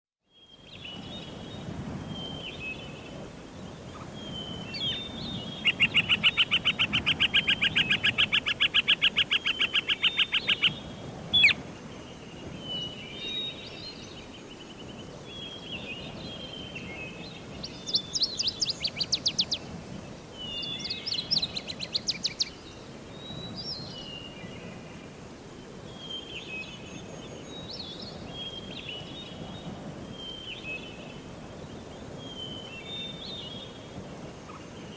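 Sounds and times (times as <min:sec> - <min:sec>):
faint background hiss: 0:00.3 - 0:34.9
birds chirping: 0:02.2 - 0:24.3.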